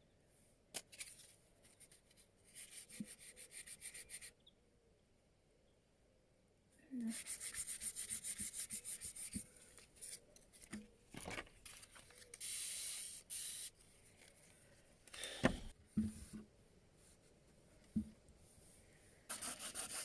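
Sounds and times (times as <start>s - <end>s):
sandpaper rubbing on wood: 7.1s - 9.4s, 19.3s - 20.0s.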